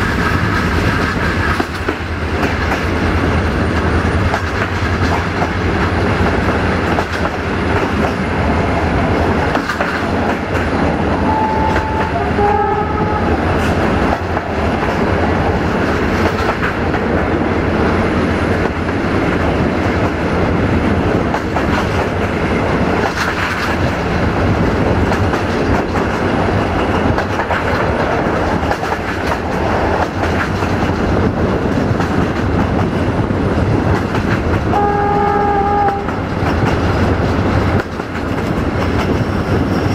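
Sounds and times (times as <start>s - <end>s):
wheels clicking over rail joints: 0.0s - 12.7s, 21.2s - 39.9s
train rumbling: 0.0s - 39.9s
train horn: 11.1s - 13.6s, 34.7s - 36.3s.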